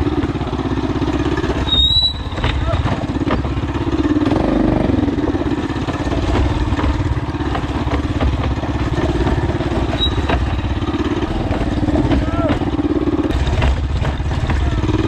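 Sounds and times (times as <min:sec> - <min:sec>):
mini bike engine running: 0:00.0 - 0:15.0.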